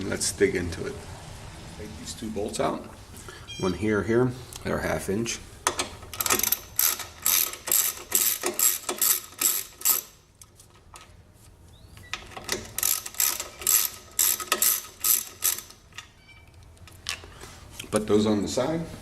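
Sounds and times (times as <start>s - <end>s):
socket ratchet wrench clicking: 5.7s - 10.2s, 12.4s - 16.1s.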